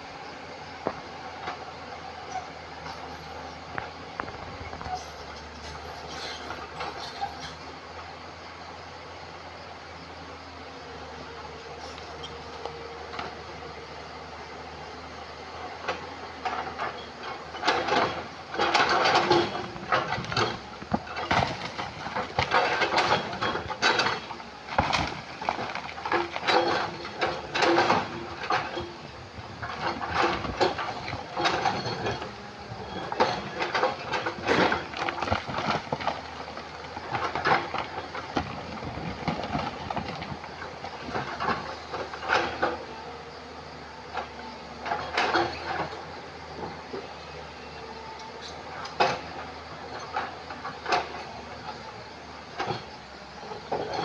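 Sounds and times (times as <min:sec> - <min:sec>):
excavator engine hum: 0:00.0 - 0:54.0
rock scraping steel bucket: 0:29.7 - 0:36.0.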